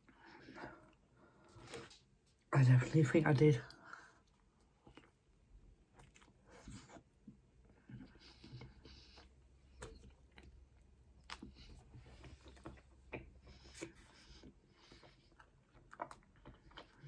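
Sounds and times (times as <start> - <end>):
chewing pizza crust: 3.7 - 17.0.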